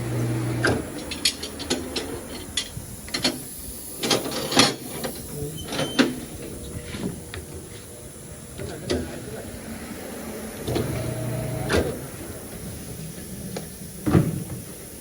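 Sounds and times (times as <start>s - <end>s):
tools and wheel parts clicking: 1.0s - 5.2s.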